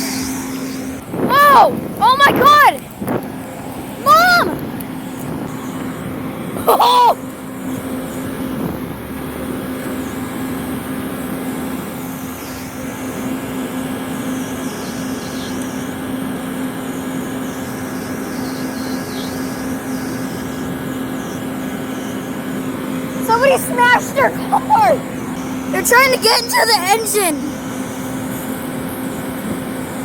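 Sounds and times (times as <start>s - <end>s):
car cabin engine and road noise: 22.6s - 27.6s.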